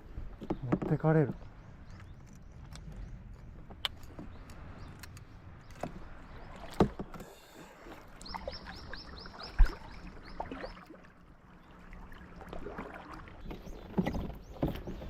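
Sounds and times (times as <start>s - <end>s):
knocks on small boat: 0.4s - 1.4s, 6.7s - 7.3s, 13.4s - 15.0s.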